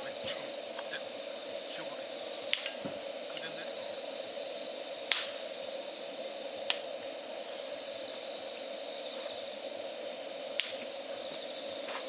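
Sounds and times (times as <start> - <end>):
campfire crackle: 0.0 - 12.0
crickets chirring: 0.0 - 12.0.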